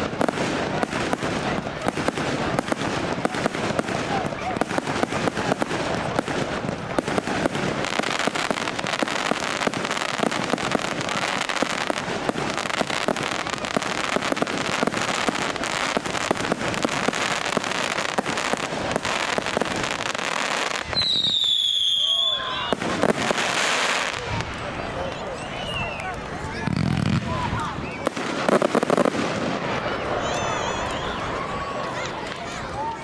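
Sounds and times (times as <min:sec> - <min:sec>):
fireworks crackling and popping: 0:00.0 - 0:33.0.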